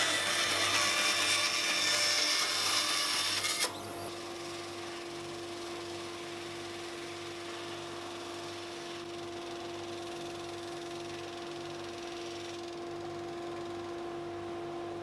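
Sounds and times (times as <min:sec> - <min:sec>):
woodworking machine humming: 0:00.0 - 0:09.0.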